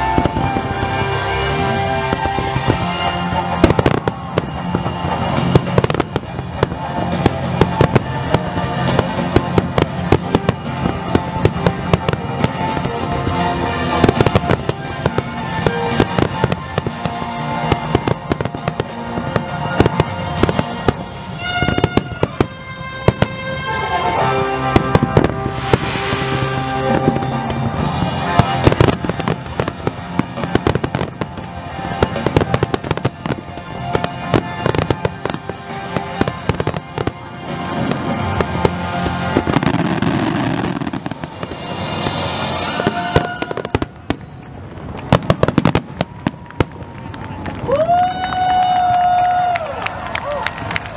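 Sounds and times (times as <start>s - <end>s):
fireworks bursting and crackling: 0.0s - 50.9s
music playing: 0.0s - 50.9s.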